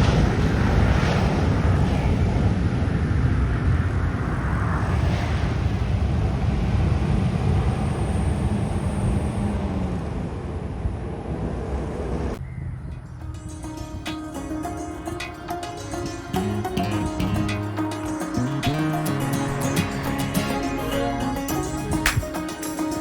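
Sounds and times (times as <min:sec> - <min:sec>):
jet engines roaring: 0:00.0 - 0:12.4
music: 0:13.1 - 0:23.0.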